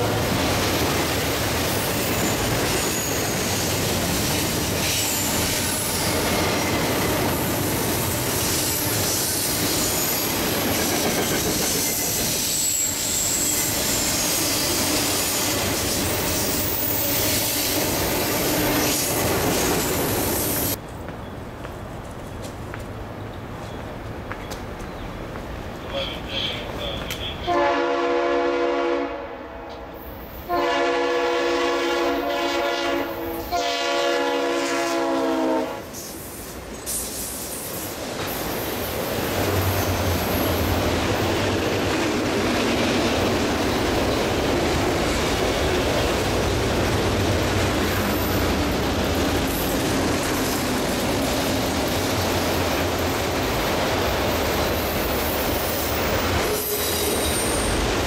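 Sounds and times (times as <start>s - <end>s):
train wheels on rail: 0.0s - 28.8s, 29.7s - 58.0s
train air horn blasts: 27.3s - 36.0s.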